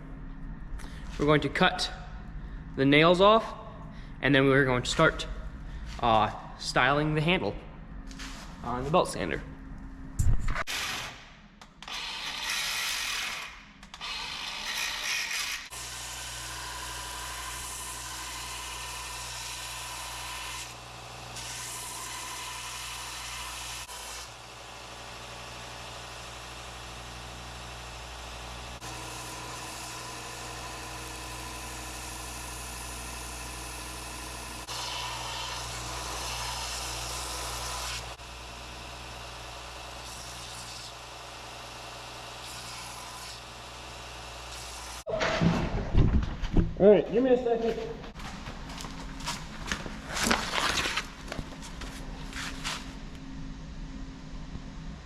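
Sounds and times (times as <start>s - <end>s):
belt sander grinding wood: 11.9s - 45.1s.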